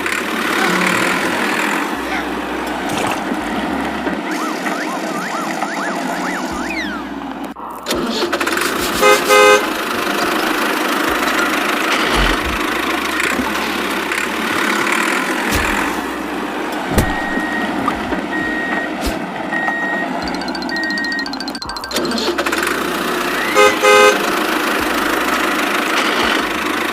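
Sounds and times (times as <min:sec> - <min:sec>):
engine running: 0:00.0 - 0:26.9
vehicle horn toots: 0:09.0 - 0:10.5, 0:23.3 - 0:24.6
short high beeps: 0:19.6 - 0:22.6.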